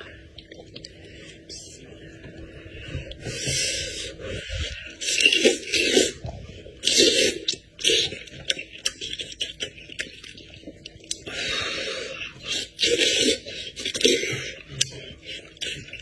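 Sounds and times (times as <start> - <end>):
chewing and crunching meat: 4.5 - 16.0.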